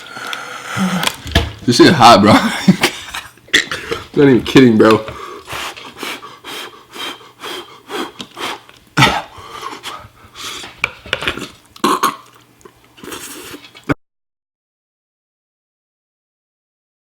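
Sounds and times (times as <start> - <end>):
person huffing and puffing: 5.2 - 10.8.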